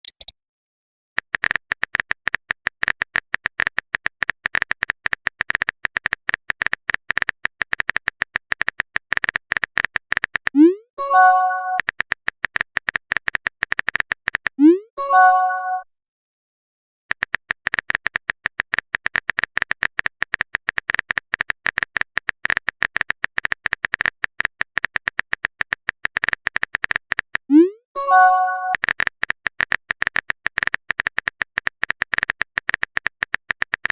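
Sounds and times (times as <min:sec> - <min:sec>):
rapid keyboard typing clicks: 0:00.0 - 0:00.3, 0:01.2 - 0:14.6, 0:17.1 - 0:27.5, 0:28.7 - 0:33.9
pitched message chime: 0:11.0 - 0:11.8, 0:15.0 - 0:15.8, 0:28.0 - 0:28.8.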